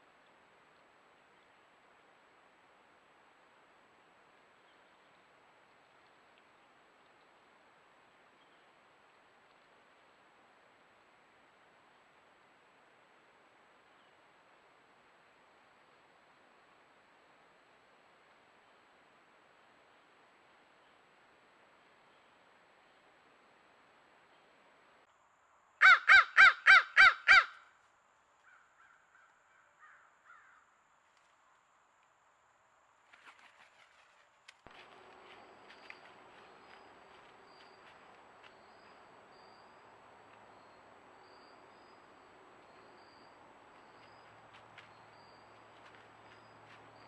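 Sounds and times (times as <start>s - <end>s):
faint crickets chirping: 0.0s - 25.8s, 27.6s - 47.0s
crow cawing: 25.8s - 27.6s, 28.4s - 30.7s.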